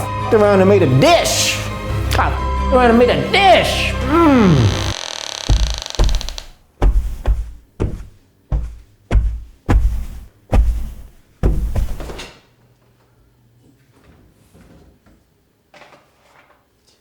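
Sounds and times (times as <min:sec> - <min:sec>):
heavy thumps: 0:04.1 - 0:12.2.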